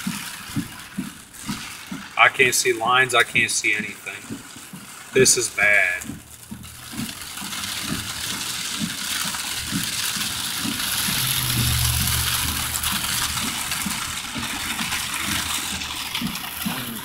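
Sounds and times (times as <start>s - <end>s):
heavy rain on car roof: 0.0s - 17.0s
low rumble: 10.9s - 15.4s.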